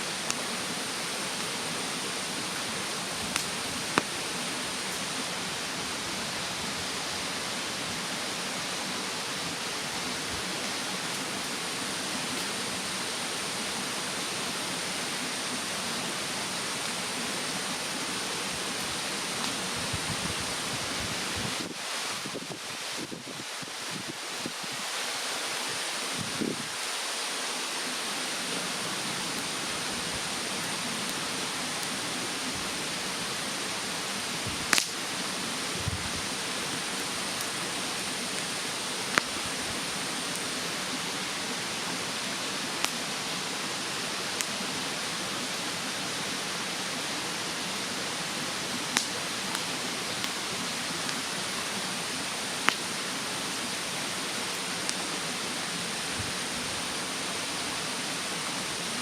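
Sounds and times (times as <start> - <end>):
mountain stream rushing: 0.0 - 59.0
wood fire crackling and popping: 2.9 - 5.1, 34.5 - 39.7, 48.8 - 50.4, 52.6 - 53.0.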